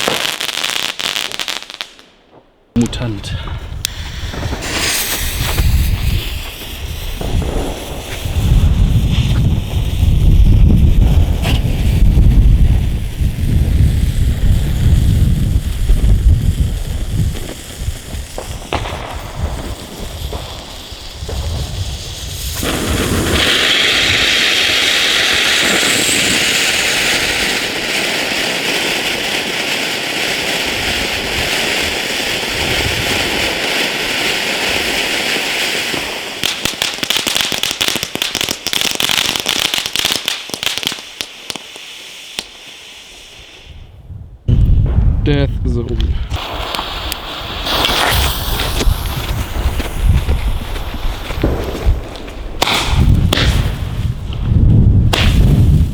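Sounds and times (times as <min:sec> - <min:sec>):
firework battery firing: 0:00.0 - 0:43.9, 0:44.5 - 0:55.9
sharp firework cracks: 0:00.0 - 0:43.9, 0:46.0 - 0:55.9
steady even hiss: 0:03.9 - 0:08.5, 0:40.3 - 0:43.8, 0:45.7 - 0:52.5.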